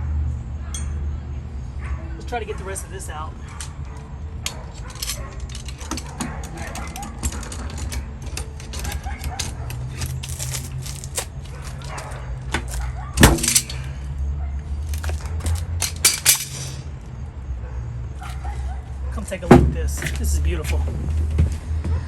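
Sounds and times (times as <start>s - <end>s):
glue tabs cracking off panel: 5.8s - 13.6s.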